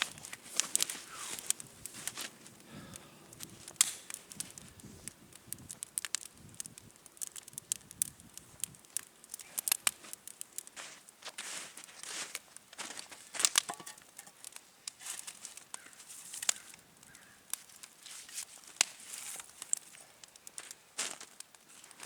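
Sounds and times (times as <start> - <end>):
irregular crackling clicks: 0.0 - 4.6, 5.3 - 10.7, 14.4 - 18.0.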